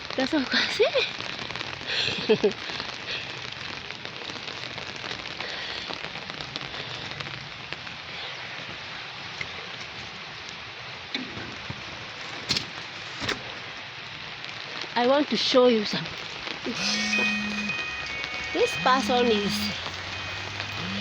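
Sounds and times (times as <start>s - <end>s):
raindrop ticks: 0.0s - 8.0s, 13.9s - 21.0s
rain falling steadily: 0.0s - 21.0s.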